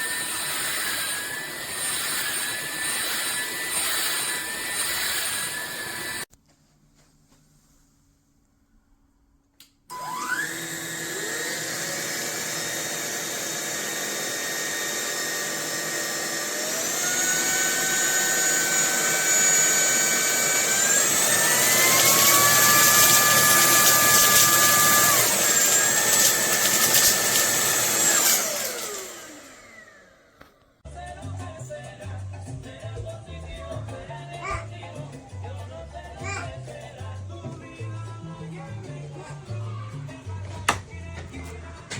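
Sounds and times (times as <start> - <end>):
vacuum motor whining: 0.0 - 6.3, 9.9 - 30.7.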